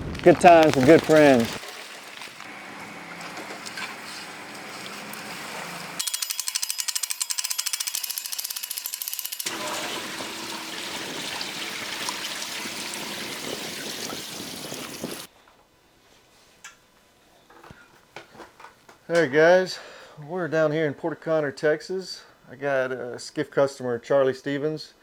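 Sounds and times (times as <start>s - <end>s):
rain hissing on water: 0.0s - 6.0s, 9.5s - 15.3s
rapid ratchet-like clicking: 6.0s - 9.5s.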